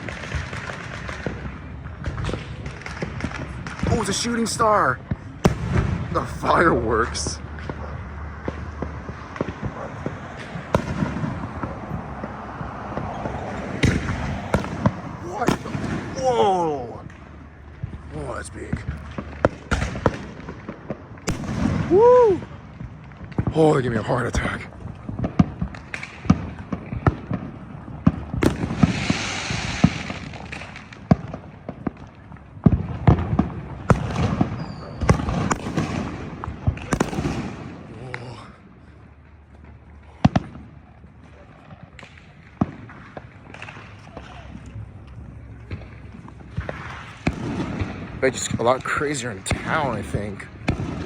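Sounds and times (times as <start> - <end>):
fireworks crackling: 0.0 - 51.0
loud firework bangs: 0.0 - 51.0
hissing crackle: 28.4 - 31.1.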